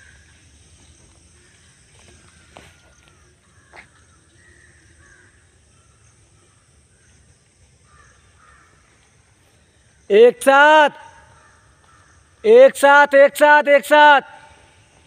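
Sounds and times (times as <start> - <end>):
faint bird calls: 0.0 - 10.2, 10.9 - 12.5.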